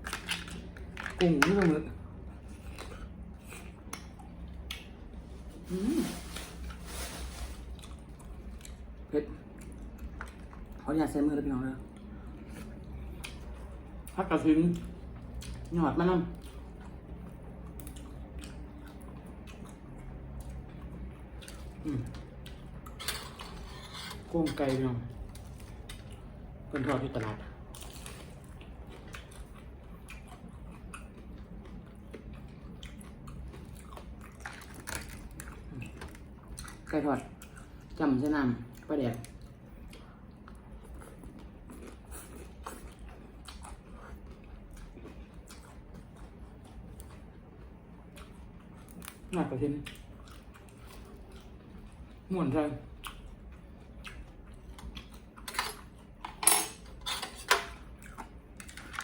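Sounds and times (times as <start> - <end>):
person chewing food: 0.0 - 10.8, 11.9 - 15.7, 16.3 - 24.0, 25.1 - 38.0, 38.7 - 52.2, 52.9 - 56.9, 57.7 - 59.0
cutlery and dishes clinking: 23.0 - 24.8, 55.4 - 57.8.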